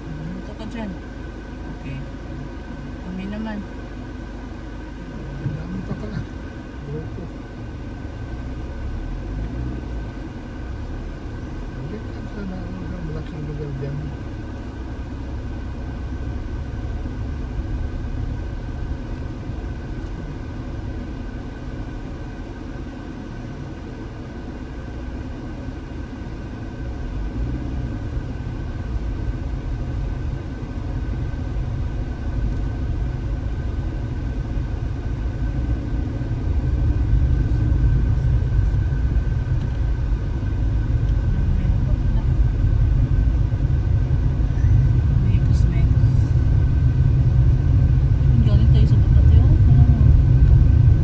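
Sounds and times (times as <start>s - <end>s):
car engine and tyres rumbling: 0.0s - 51.0s.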